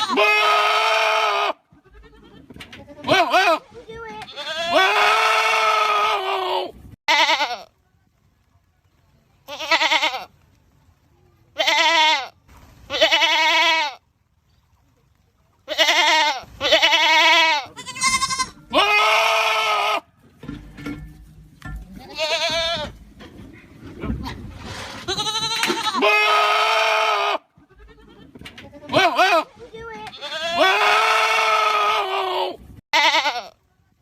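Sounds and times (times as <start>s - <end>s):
goats screaming: 0.0s - 2.2s, 4.3s - 7.5s, 15.7s - 20.1s, 25.0s - 28.2s, 30.2s - 33.5s.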